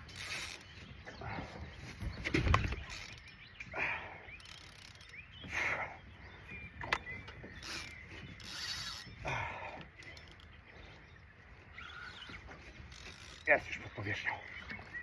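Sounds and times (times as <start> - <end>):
fishing reel ratcheting: 4.4 - 5.1, 7.6 - 9.1, 12.9 - 13.5.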